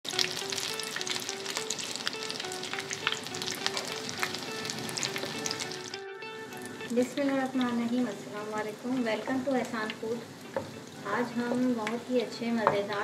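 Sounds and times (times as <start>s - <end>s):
food frying in oil: 0.0s - 13.0s
soft melody of alternating notes: 0.1s - 9.1s.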